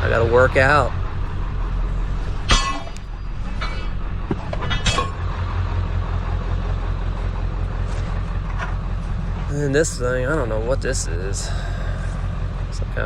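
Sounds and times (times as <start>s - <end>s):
steel bars clanking: 0.0s - 6.2s
vehicle engine idling: 0.0s - 13.0s.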